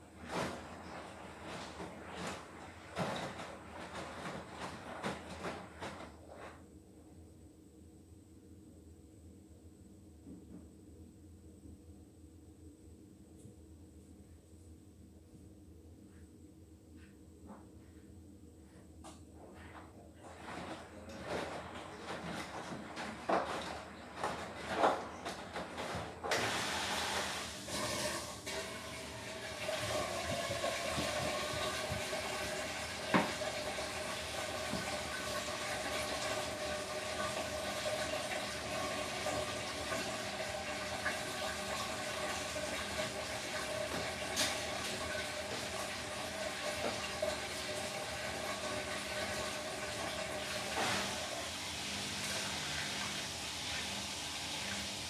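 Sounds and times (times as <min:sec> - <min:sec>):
washing machine taking in water: 0:00.0 - 0:06.6, 0:19.6 - 0:55.0.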